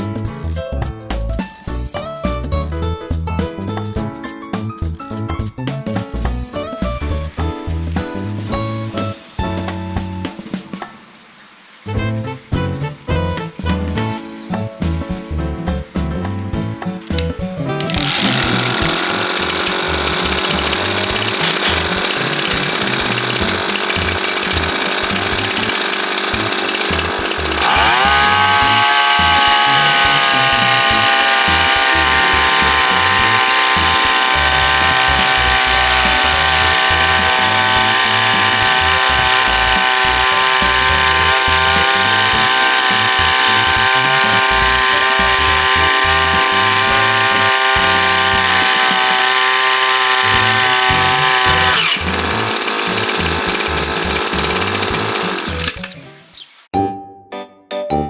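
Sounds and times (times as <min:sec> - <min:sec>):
small two-stroke engine: 0:17.1 - 0:56.7.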